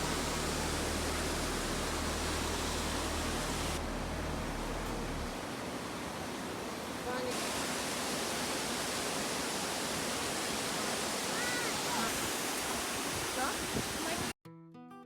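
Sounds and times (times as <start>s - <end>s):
low rumble: 0.0s - 5.6s
waterfall rushing: 0.0s - 14.3s.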